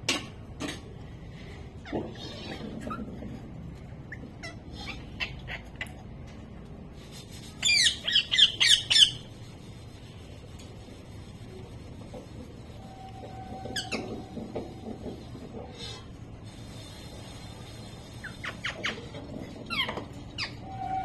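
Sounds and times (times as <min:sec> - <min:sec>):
parrot chirping: 0:04.0 - 0:06.0, 0:07.6 - 0:09.4, 0:13.6 - 0:14.4, 0:18.0 - 0:21.0.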